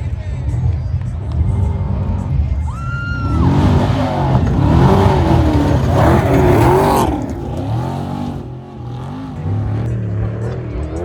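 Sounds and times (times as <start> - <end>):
race vehicle engine revving: 0.5 - 10.0
tyre and dirt noise: 0.9 - 10.0.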